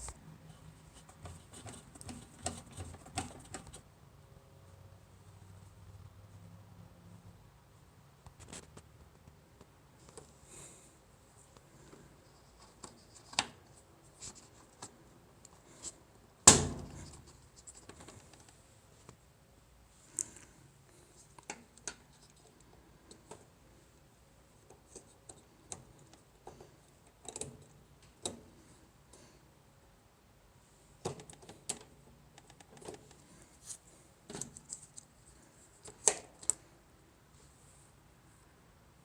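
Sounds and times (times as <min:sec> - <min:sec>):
hands clicking and scraping parts: 0:00.0 - 0:03.9, 0:11.5 - 0:19.2, 0:21.1 - 0:29.3, 0:31.0 - 0:36.7.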